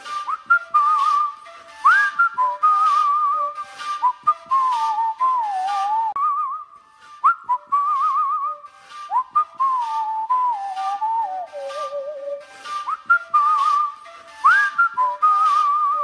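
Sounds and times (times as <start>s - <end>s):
background music with light percussion: 0.0s - 16.0s
whistled melody: 0.0s - 16.0s.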